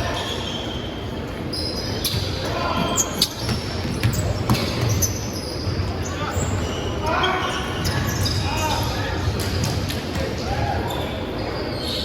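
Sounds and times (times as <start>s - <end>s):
players' voices: 1.6s - 12.0s
basketball bouncing on court: 3.4s - 5.1s, 9.3s - 10.3s.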